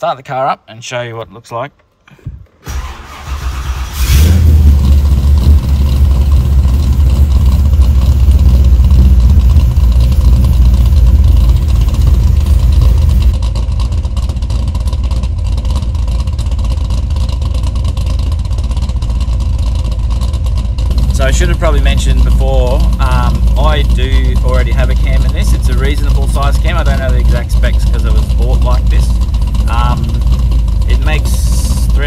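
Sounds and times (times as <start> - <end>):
car engine idling: 2.3 - 32.0.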